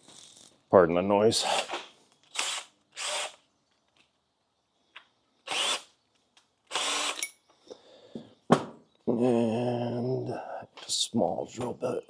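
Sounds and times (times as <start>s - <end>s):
power drill bursts: 2.3s - 3.4s, 5.5s - 5.9s, 6.7s - 7.3s.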